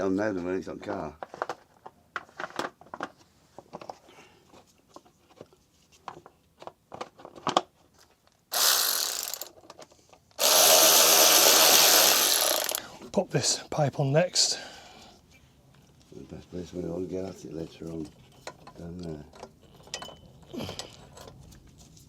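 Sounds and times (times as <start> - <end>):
power tool running: 8.5 - 9.5, 10.4 - 12.8
parts clicking and knocking: 8.5 - 12.8.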